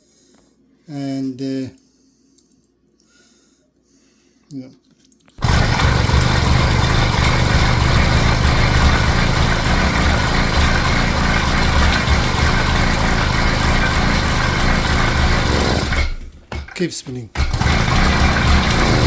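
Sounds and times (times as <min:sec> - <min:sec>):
two-stroke engine turning over: 0:05.4 - 0:19.0.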